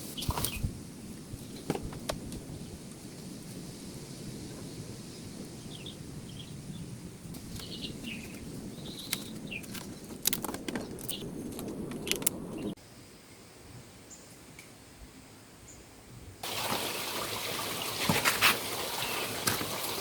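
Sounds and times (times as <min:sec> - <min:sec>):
low rushing noise: 0:02.7 - 0:12.8
sharp clicks or snaps: 0:09.1 - 0:12.6.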